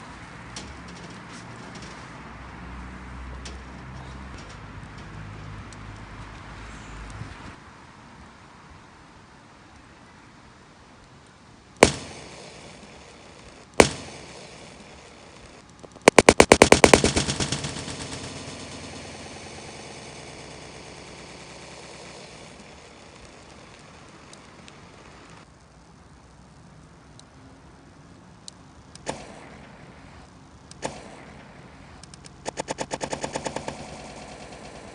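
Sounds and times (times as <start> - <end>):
sharp bangs: 0.0 - 5.5, 11.8 - 25.4, 29.0 - 34.9
hiss: 11.8 - 15.6, 16.8 - 25.4.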